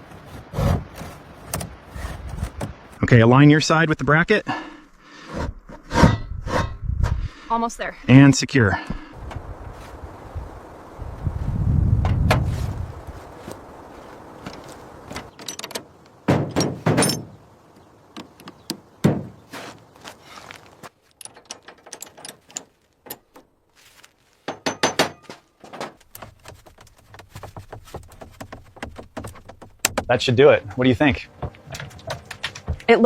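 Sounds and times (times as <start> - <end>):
knocks and thunks of parts: 15.1 - 17.4, 18.1 - 19.7, 21.1 - 23.5, 24.4 - 30.3, 31.3 - 33.0.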